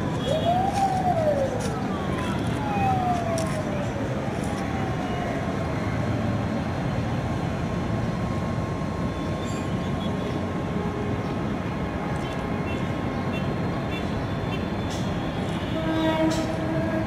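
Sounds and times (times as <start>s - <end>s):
train rumbling: 14.9s - 17.0s.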